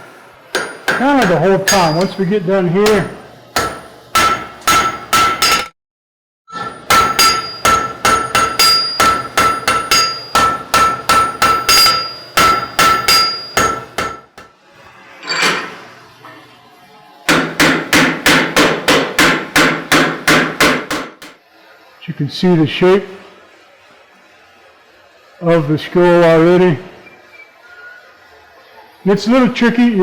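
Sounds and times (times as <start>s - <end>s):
hammer ringing on hot steel: 0.5s - 5.7s, 6.6s - 14.5s.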